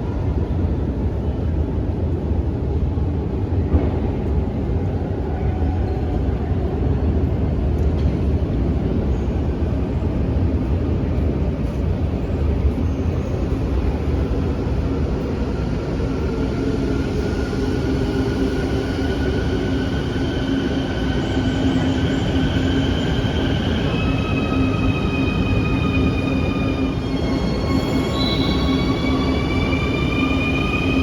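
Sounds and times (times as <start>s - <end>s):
train low rumble: 0.0s - 31.0s.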